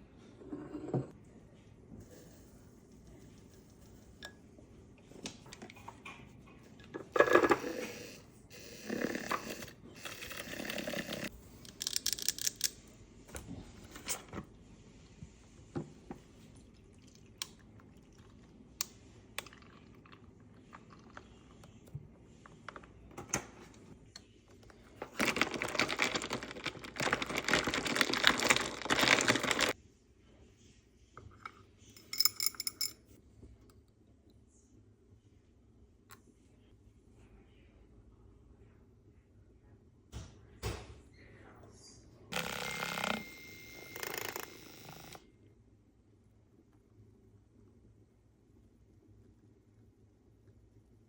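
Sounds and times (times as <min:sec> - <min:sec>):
rustling or pouring: 0:25.0 - 0:29.8.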